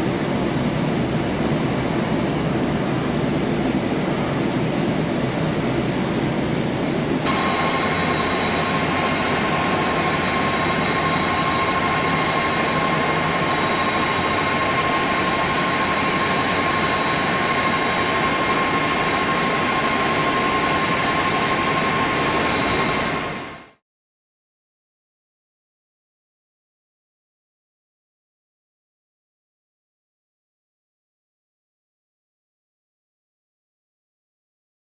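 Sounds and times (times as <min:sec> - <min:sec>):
high engine whine: 0:00.0 - 0:23.8
jet engines rushing: 0:00.0 - 0:23.8.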